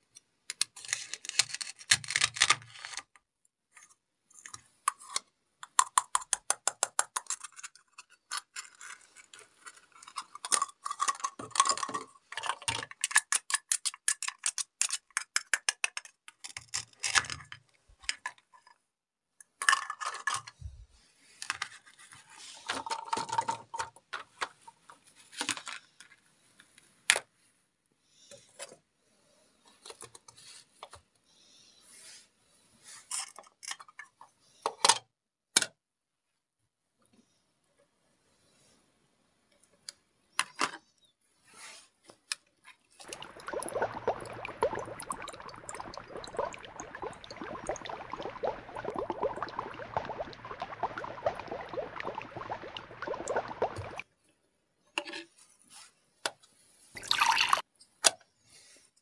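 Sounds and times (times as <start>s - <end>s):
plastic pieces scraping and knocking: 0.5s - 3.2s, 4.4s - 18.8s, 19.5s - 20.6s, 21.4s - 26.1s.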